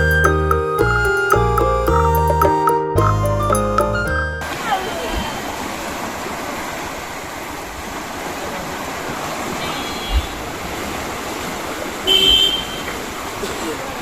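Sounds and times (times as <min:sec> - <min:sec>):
water rushing through sluice gate: 0:04.4 - 0:14.0.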